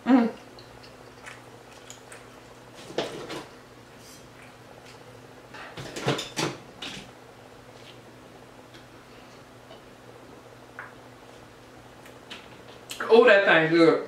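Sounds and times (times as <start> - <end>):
woman chewing food: 0.2 - 3.3.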